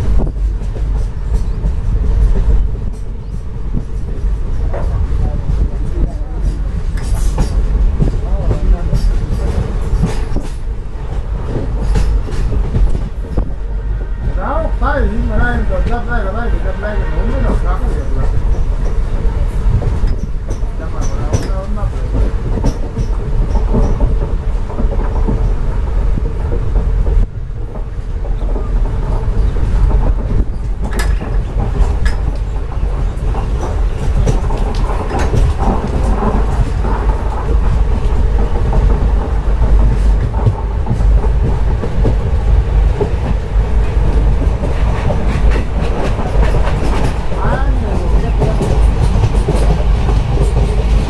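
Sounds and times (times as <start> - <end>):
train carriage rumbling: 0.0 - 51.0
wheels clicking over rail joints: 19.7 - 51.0.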